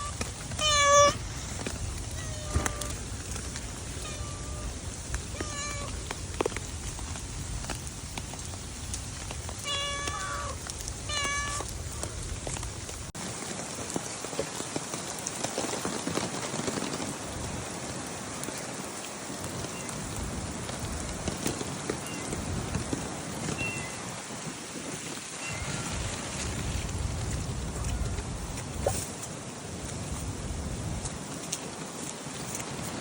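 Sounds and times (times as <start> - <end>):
cat meowing: 0.0 - 1.2, 2.1 - 3.0, 4.0 - 5.9, 9.6 - 11.7
rain pattering: 0.0 - 33.0.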